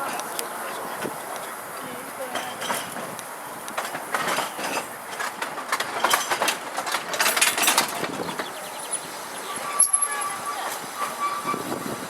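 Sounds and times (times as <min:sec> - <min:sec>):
tram wheels clicking on rails: 0:00.0 - 0:12.0.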